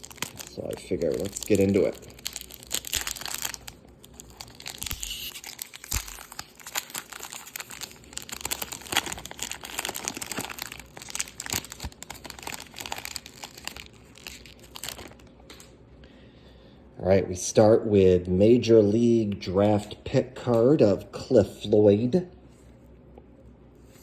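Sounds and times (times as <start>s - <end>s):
cellophane wrapper crinkling and tearing: 0.0s - 15.7s.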